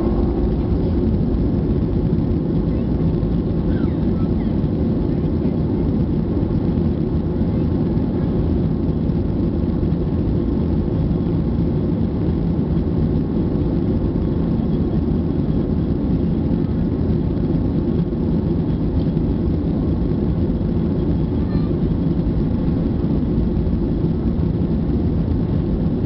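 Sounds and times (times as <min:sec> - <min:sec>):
jet engines at take-off: 0:00.0 - 0:26.0.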